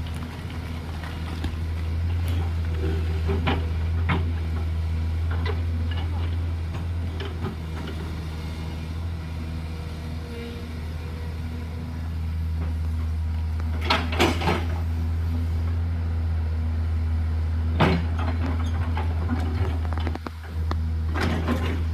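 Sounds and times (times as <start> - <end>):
bucket clanking and scraping rock: 0.0 - 4.3
excavator diesel engine running: 0.0 - 21.9.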